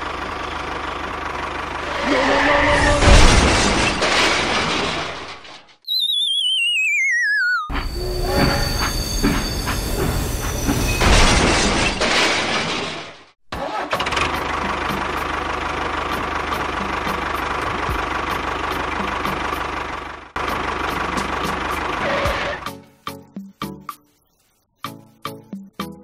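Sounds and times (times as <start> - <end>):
tractor engine running: 0.0 - 2.6, 13.7 - 22.6.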